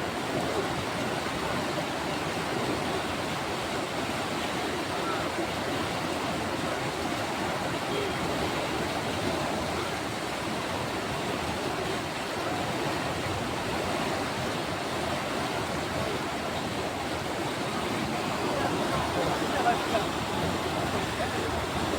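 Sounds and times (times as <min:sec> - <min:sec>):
rushing floodwater: 0:00.0 - 0:21.9.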